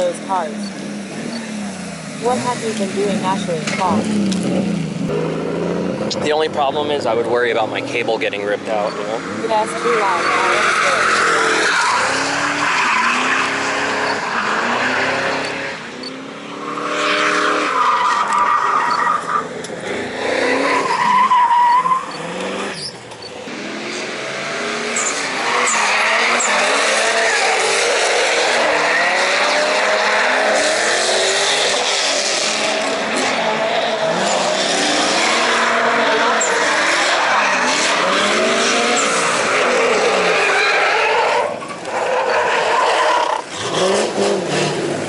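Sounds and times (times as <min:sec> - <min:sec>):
car engines revving: 0:00.0 - 0:45.0
tire squeal: 0:08.7 - 0:24.0, 0:24.8 - 0:44.9.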